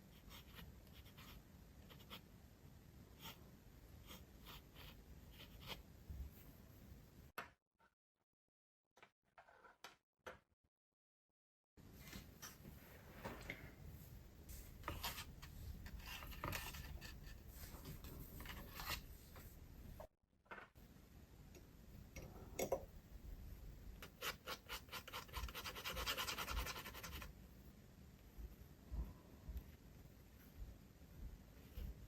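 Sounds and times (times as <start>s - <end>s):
dip pen scratching on paper: 0.1s - 2.2s, 3.2s - 3.4s, 4.0s - 5.8s, 14.8s - 17.4s, 24.0s - 27.3s.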